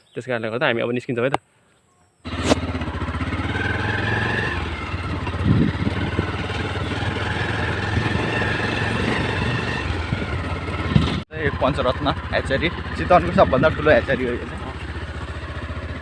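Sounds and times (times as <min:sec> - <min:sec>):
motorcycle engine running: 0:02.3 - 0:16.0.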